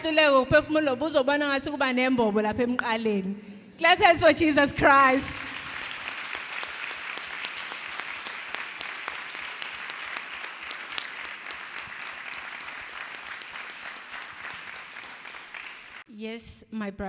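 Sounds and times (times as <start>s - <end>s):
crowd applauding: 5.3s - 16.0s.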